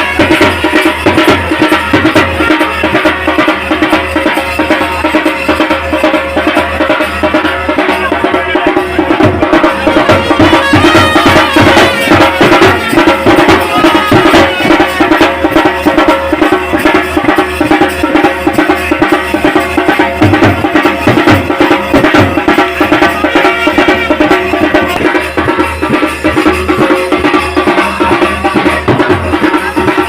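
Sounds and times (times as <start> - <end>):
fast dense drumming: 0.0 - 30.0
folk band music: 6.7 - 16.1.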